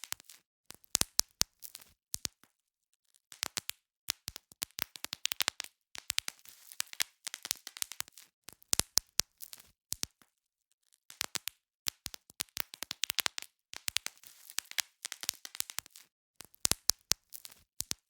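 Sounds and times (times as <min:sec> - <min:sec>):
bubble wrap popping: 0:03.3 - 0:10.2, 0:11.1 - 0:18.0.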